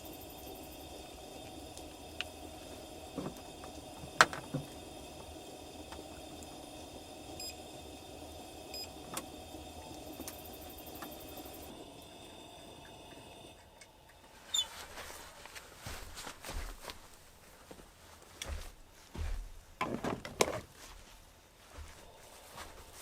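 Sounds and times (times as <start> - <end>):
campfire crackling: 0.0 - 13.9.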